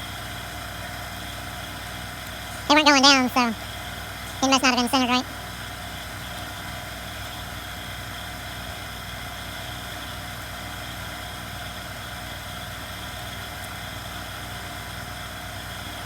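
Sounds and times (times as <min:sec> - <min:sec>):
background hum with hiss: 0:02.4 - 0:03.6, 0:04.4 - 0:05.3.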